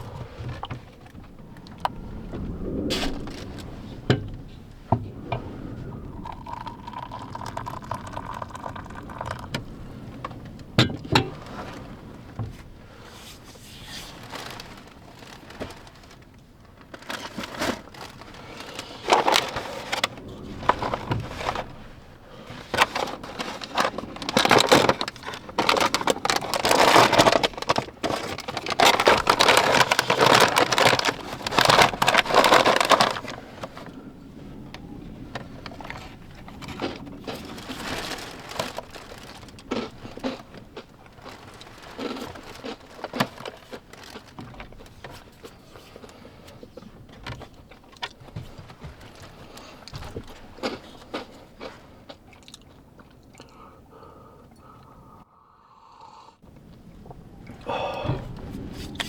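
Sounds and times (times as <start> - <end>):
crinkly rustling: 0.0 - 53.4
clicks and knocks of handling: 22.5 - 33.9.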